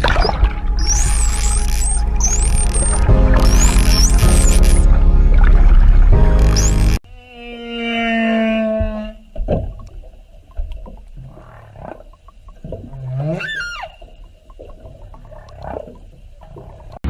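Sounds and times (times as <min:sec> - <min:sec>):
animal calls: 0:13.2 - 0:14.0.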